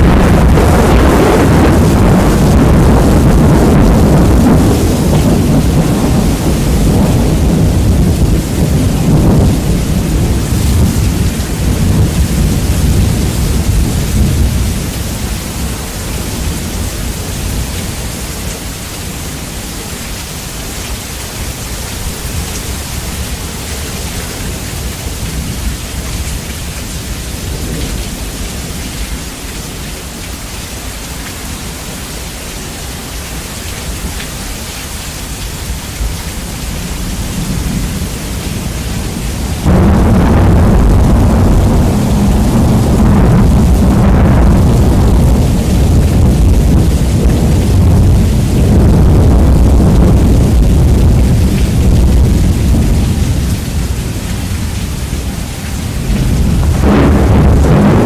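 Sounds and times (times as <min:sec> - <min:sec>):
thunder rumble: 0:00.0 - 0:18.3, 0:36.0 - 0:58.0
steady rain hiss: 0:00.0 - 0:58.0.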